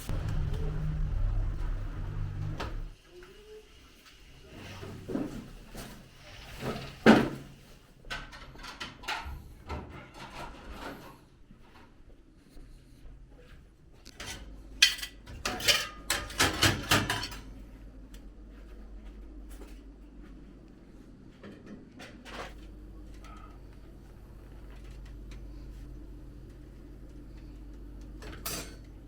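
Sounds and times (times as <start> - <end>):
pots and dishes clattering: 14.2 - 17.5, 28.2 - 28.9.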